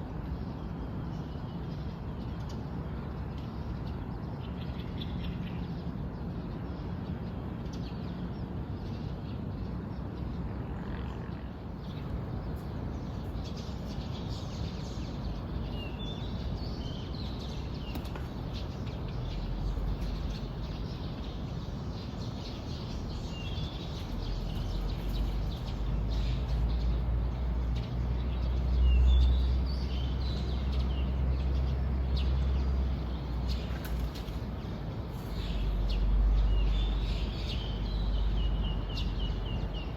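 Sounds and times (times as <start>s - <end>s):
small birds chirping: 11.3s - 39.9s.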